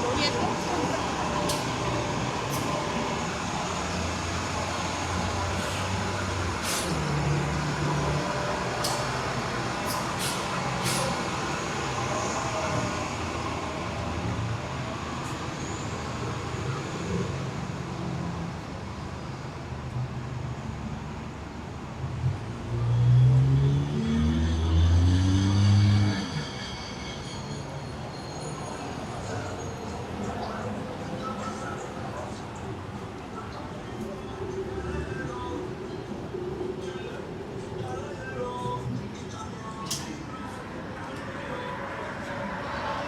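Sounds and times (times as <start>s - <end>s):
steady city hum: 0.0s - 43.0s
vehicle pulling away: 22.6s - 26.4s.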